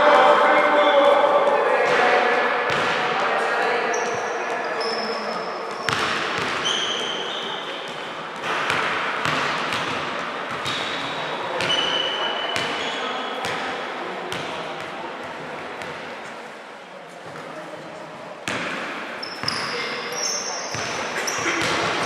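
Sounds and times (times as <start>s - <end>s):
voices in echoing hall: 0.0s - 22.0s
sneakers squeaking on floor: 3.9s - 13.6s, 18.5s - 22.0s
basketball bouncing: 5.9s - 6.6s, 8.4s - 11.0s, 20.7s - 22.0s.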